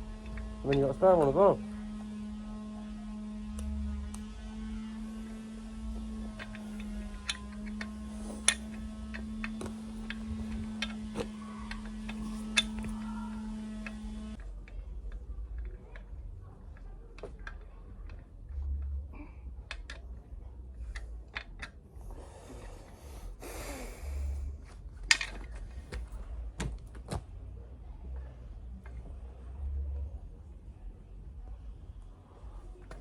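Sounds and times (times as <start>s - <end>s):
metal tools clicking and knocking: 6.0s - 18.4s, 25.0s - 26.1s.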